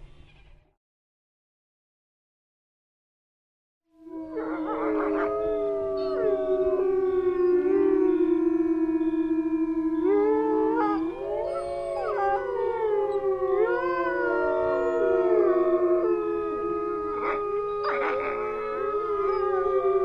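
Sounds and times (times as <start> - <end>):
wolves howling: 4.0 - 20.0
wolves yipping: 4.4 - 6.2, 17.1 - 19.6.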